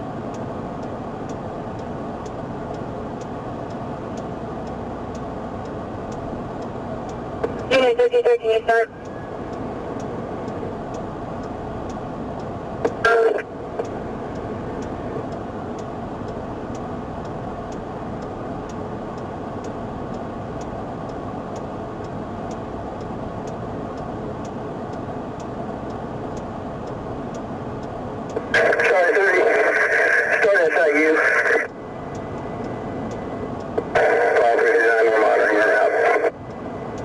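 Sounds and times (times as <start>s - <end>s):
light regular ticking: 0.0s - 37.0s
steady car interior hum: 0.0s - 37.0s
police radio squawk: 28.5s - 31.7s, 33.9s - 36.3s.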